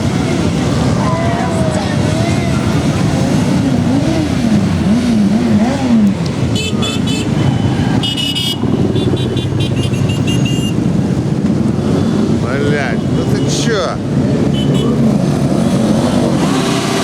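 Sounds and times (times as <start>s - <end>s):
motorcycle engines running: 0.0s - 17.0s
horns beeping: 4.0s - 11.2s, 12.5s - 15.2s.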